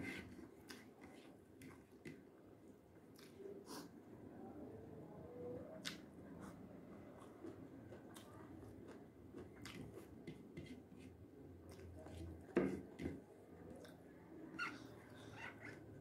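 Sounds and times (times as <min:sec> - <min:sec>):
person chewing food: 0:05.8 - 0:12.4.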